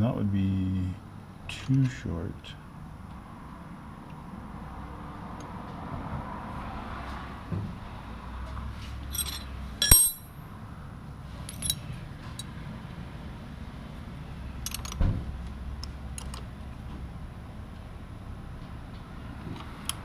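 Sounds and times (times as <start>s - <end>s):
metal tools clinking: 9.1s - 10.3s, 11.5s - 11.8s
low steady hum: 9.1s - 10.6s.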